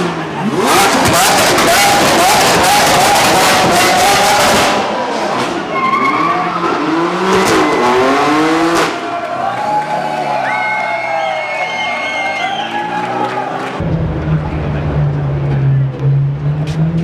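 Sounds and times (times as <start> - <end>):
car engine revving: 0.0 - 9.2, 13.1 - 17.0.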